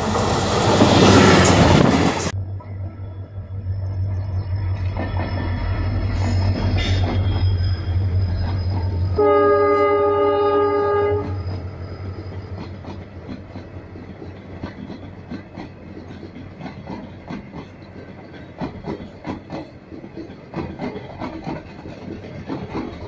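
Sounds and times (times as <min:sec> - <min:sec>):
locomotive horn blast: 0:09.1 - 0:11.6
train wheel clicks: 0:11.2 - 0:23.0.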